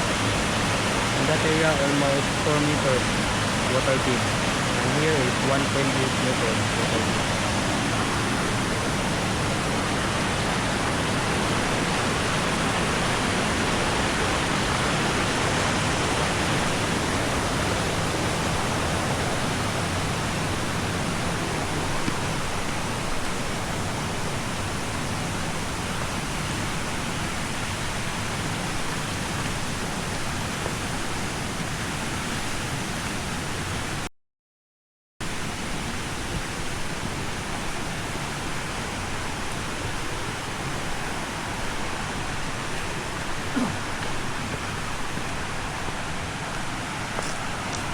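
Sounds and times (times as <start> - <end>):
waterfall pouring into pool: 0.0 - 31.9.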